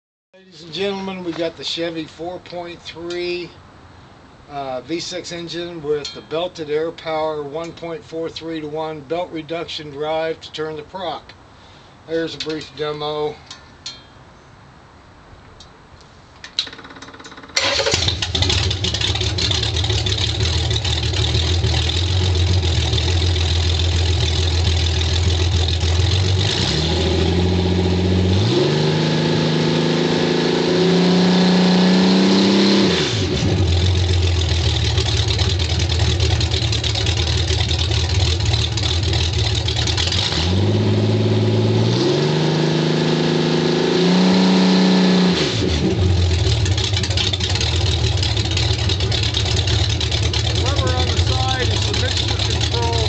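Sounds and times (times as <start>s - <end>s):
engine starting and revving: 17.3s - 53.0s.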